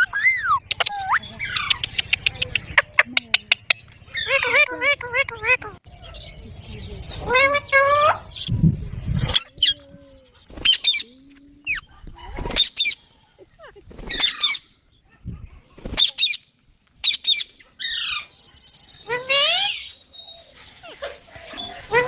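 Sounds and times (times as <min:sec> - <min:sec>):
parrot squawking: 0:04.1 - 0:05.8.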